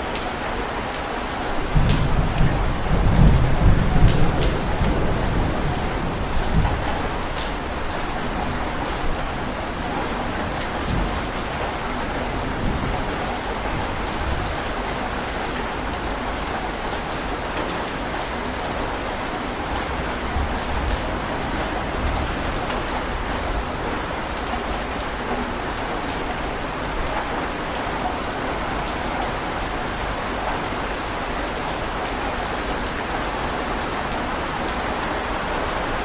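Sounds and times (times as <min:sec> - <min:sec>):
heavy rain falling: 0:00.0 - 0:36.0
low thunder rolling: 0:01.7 - 0:09.5.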